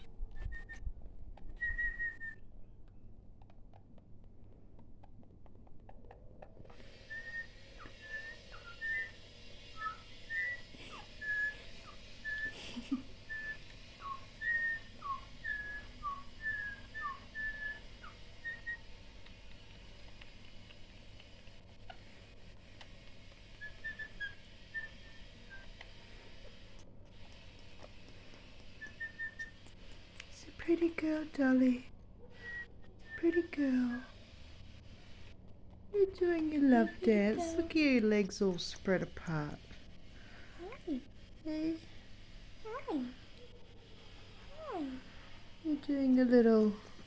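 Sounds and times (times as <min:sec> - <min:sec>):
parrot whistling high notes: 0:07.1 - 0:12.5, 0:13.3 - 0:18.8.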